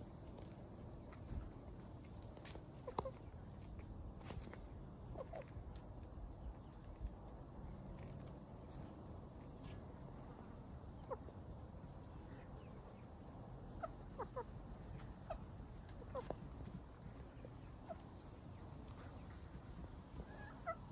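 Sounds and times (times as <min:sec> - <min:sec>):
outdoor background noise: 0:00.0 - 0:20.9
chickens clucking softly: 0:02.6 - 0:03.8, 0:05.0 - 0:06.0, 0:10.2 - 0:20.9.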